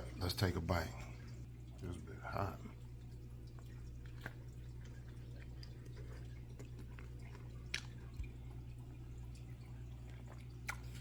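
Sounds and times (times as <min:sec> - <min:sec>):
steady low hum: 0:00.0 - 0:11.0
man chewing: 0:03.5 - 0:08.6, 0:10.0 - 0:11.0.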